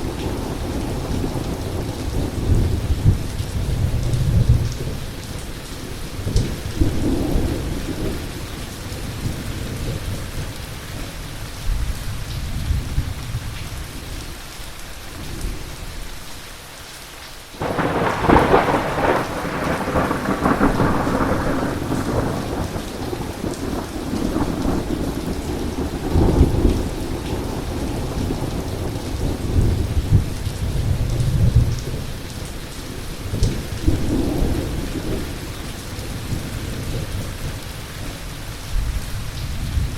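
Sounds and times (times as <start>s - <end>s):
heavy rain falling: 0.0s - 39.9s
close thunderclap: 17.6s - 32.1s
rolling thunder: 17.6s - 32.5s.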